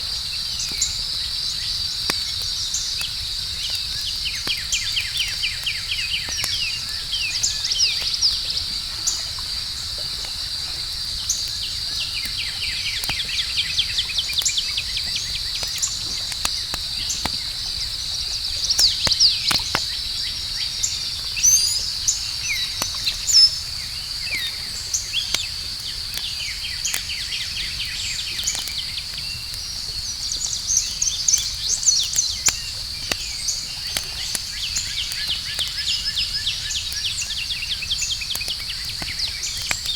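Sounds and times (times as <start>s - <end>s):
campfire crackling and popping: 0.0s - 39.9s
insect trill: 0.0s - 39.9s.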